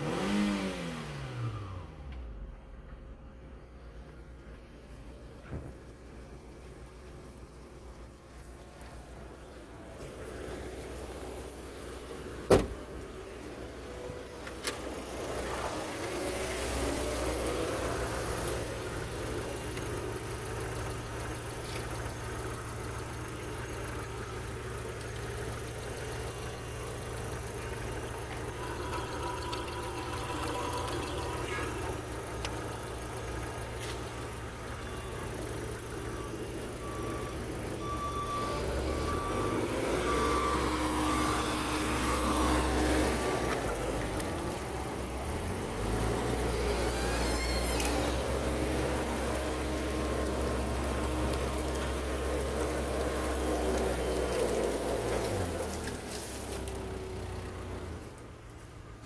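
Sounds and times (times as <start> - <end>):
car engine idling: 1.9 - 59.0
short beeps: 34.8 - 43.2.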